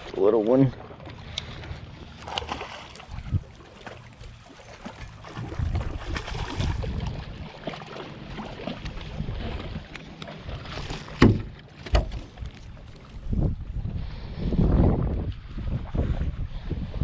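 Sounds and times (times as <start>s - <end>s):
wind buffeting microphone: 3.0s - 3.6s, 4.9s - 7.6s, 8.7s - 17.0s
sharp knocks: 11.2s - 12.2s.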